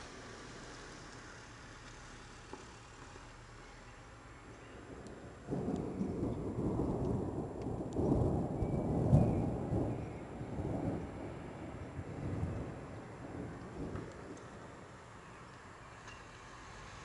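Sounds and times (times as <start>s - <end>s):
steady rain: 0.0s - 17.0s
thunder rumbling: 4.7s - 15.6s.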